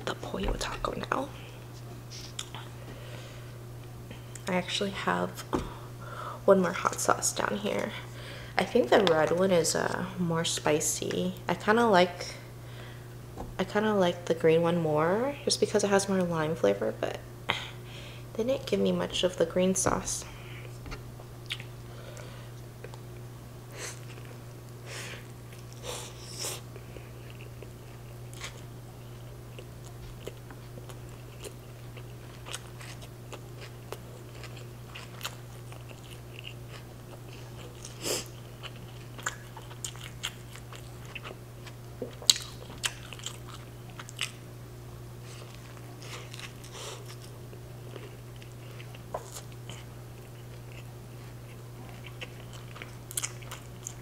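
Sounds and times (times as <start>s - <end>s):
steady low hum: 0.0s - 54.0s
person chewing food: 1.5s - 2.8s, 21.4s - 23.3s, 23.9s - 44.4s, 45.2s - 54.0s.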